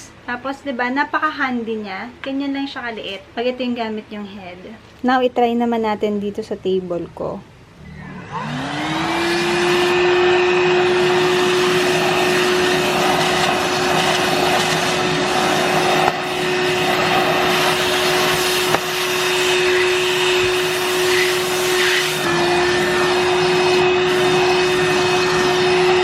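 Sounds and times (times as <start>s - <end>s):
handheld vacuum cleaner running: 7.8s - 26.0s.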